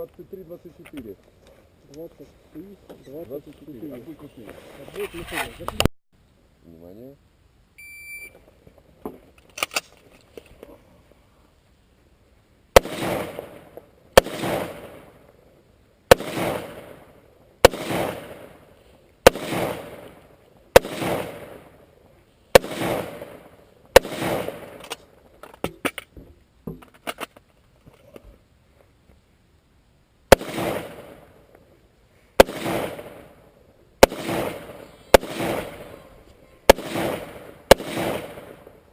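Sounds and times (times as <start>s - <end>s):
rifle shots with echo: 12.8s - 15.2s, 16.1s - 18.6s, 19.2s - 20.2s, 20.8s - 21.8s, 22.5s - 25.0s, 30.3s - 31.3s, 32.4s - 33.4s, 34.0s - 36.1s, 36.7s - 38.9s
fainter sharp cracks: 16.1s - 21.9s, 22.5s - 26.1s, 30.3s - 31.6s, 32.4s - 38.9s.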